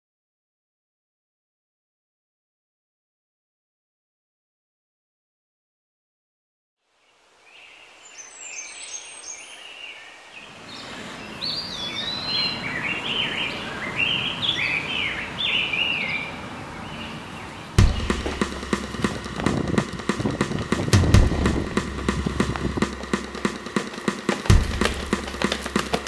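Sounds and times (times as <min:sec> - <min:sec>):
outdoor background noise: 0:06.8 - 0:26.0
small birds chirping: 0:07.0 - 0:26.0.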